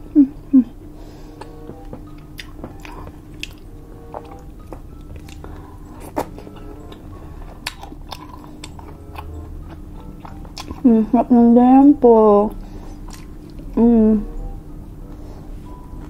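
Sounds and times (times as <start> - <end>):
crunchy chewing and mouth clicks: 1.4 - 10.9, 12.5 - 13.8.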